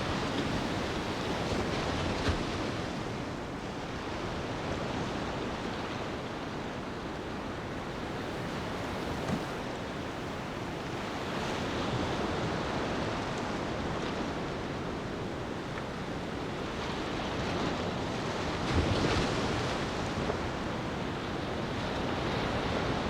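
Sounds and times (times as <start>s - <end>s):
waves washing onto shore: 0.0s - 23.0s.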